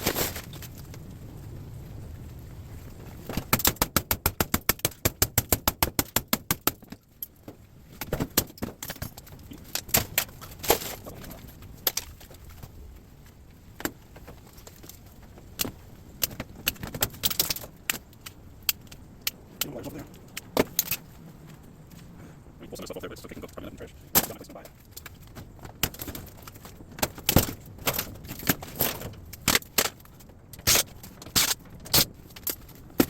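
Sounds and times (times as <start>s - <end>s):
fast run of metal clicks: 3.5s - 7.3s.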